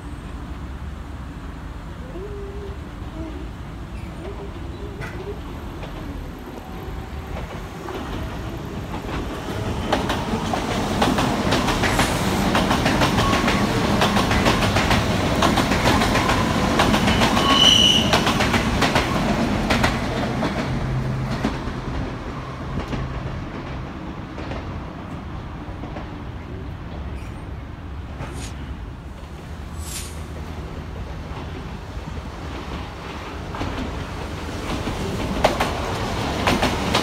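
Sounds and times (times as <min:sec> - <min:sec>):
electric train passing: 0:00.0 - 0:37.0
wheels clicking over rail joints: 0:04.0 - 0:20.7.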